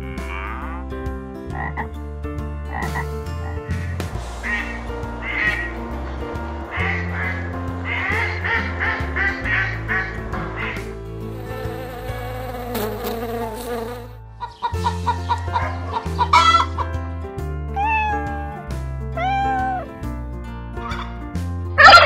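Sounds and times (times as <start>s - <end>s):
background music: 0.0s - 22.0s
bees buzzing: 4.2s - 14.2s
cat meowing: 17.7s - 19.9s.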